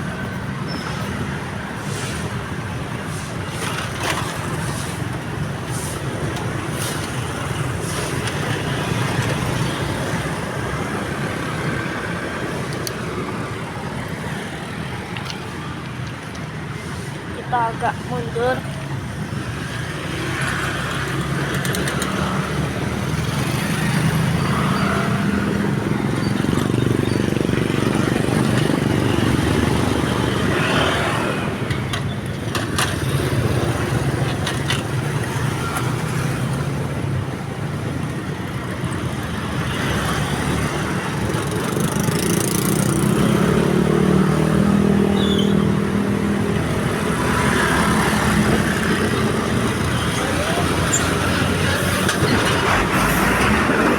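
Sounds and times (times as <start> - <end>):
car engines passing: 0.0 - 53.9
motorcycle engines passing: 17.4 - 53.9.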